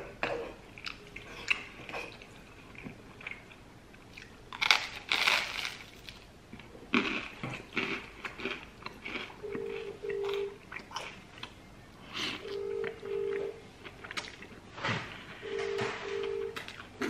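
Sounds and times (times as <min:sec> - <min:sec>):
crunchy toast chewing: 0:04.2 - 0:06.2, 0:07.0 - 0:11.6.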